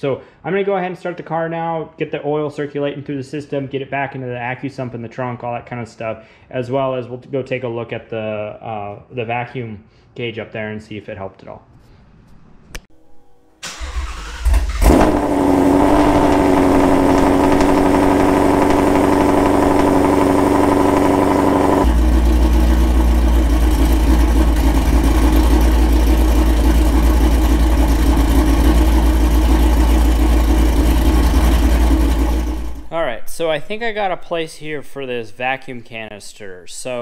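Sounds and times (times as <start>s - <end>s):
car engine idling: 13.6s - 33.0s
car engine starting: 13.6s - 33.0s.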